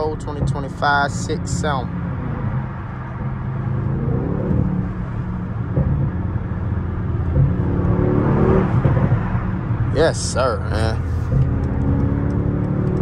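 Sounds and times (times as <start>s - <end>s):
car engine: 0.0s - 13.0s
tyre and road noise: 0.0s - 13.0s.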